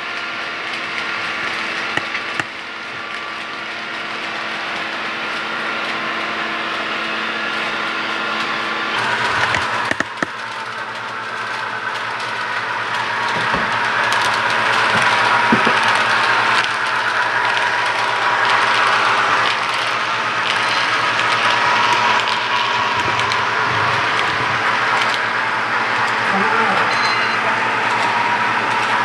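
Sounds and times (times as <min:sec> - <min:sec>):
model train whirring on track: 0:00.0 - 0:29.0
clicks: 0:00.7 - 0:02.6, 0:07.5 - 0:10.4.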